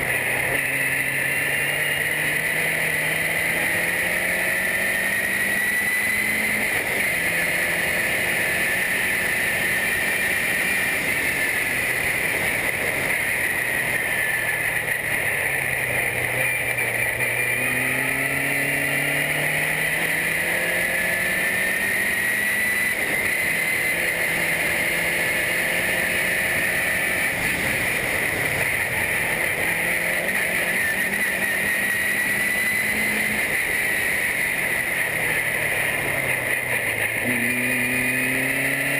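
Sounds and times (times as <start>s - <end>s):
race car engine revving: 0.0s - 38.9s
steady rushing noise: 0.0s - 38.9s.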